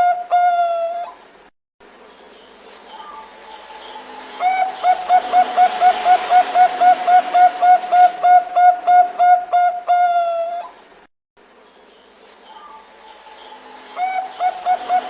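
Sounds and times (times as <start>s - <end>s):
dove cooing: 0.0s - 1.2s, 2.9s - 10.8s, 12.5s - 15.0s.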